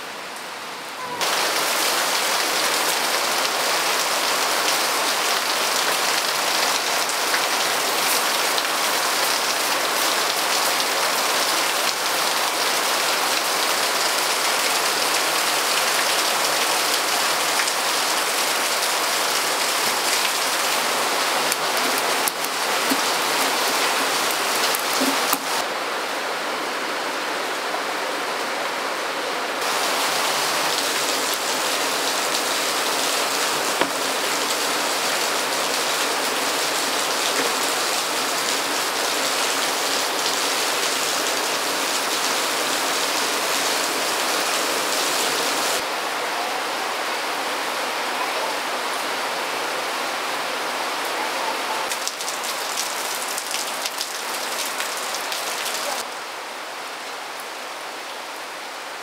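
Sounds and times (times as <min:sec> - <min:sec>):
hiss of running water: 0:01.1 - 0:25.8, 0:29.6 - 0:46.6.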